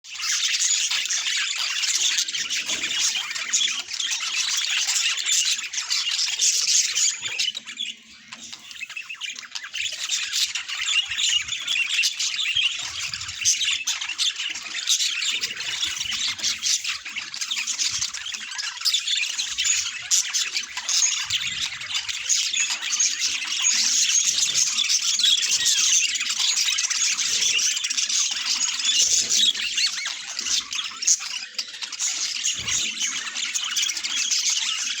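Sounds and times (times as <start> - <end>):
budgies chirping and squawking: 0.0 - 35.0.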